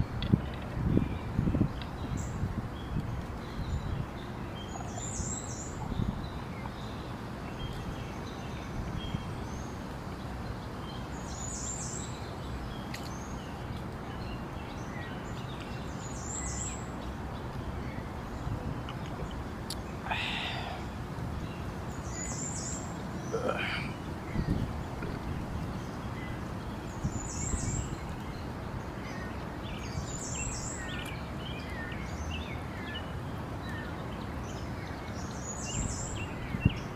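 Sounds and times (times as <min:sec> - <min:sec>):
background hiss: 0:00.0 - 0:36.9
birds chirping: 0:00.0 - 0:36.9.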